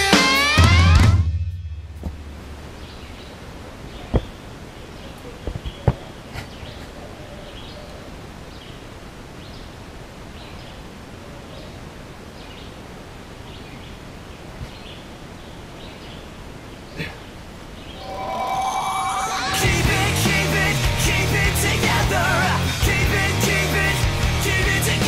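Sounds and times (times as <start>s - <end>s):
woodland ambience: 1.8s - 21.8s.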